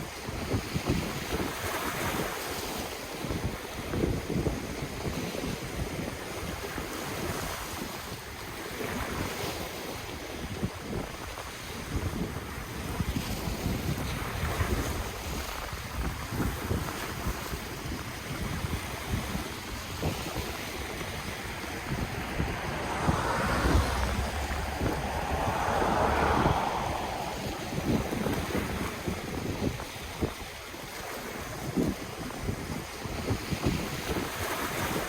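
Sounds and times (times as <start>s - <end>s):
wind buffeting the microphone: 10.4s - 35.0s
ocean waves washing onto shore: 17.8s - 35.0s.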